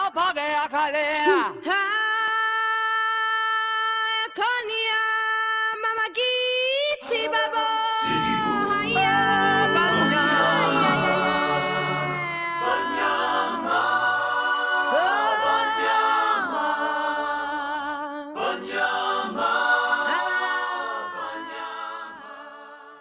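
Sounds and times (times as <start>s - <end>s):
voices singing a cappella: 6.0s - 23.0s.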